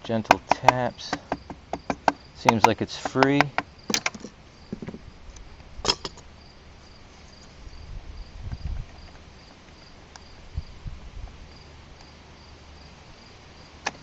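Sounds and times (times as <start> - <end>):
dull bumps and handling noises: 0.0 - 5.1.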